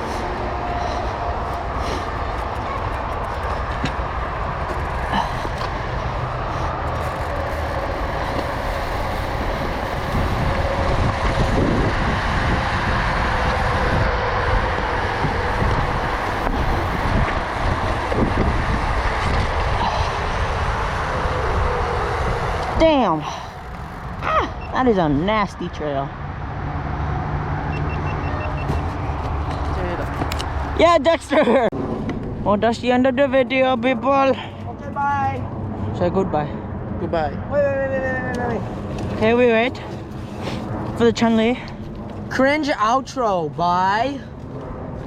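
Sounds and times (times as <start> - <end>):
bike tyres and rattle: 0.0 - 24.5
wind rumble on microphone: 0.0 - 45.0.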